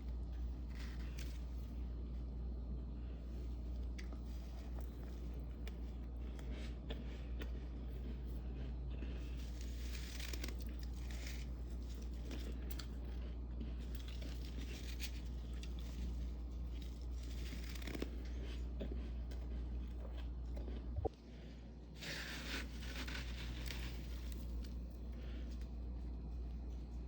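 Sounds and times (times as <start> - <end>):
frost being scraped and crunched: 0.0 - 2.0, 9.2 - 13.0, 13.8 - 18.7, 22.0 - 25.4
steady low hum: 0.0 - 27.0.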